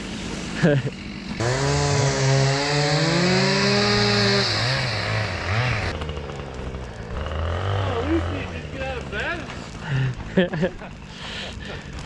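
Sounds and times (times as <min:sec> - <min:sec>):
chainsaw engine revving: 0:00.2 - 0:10.9.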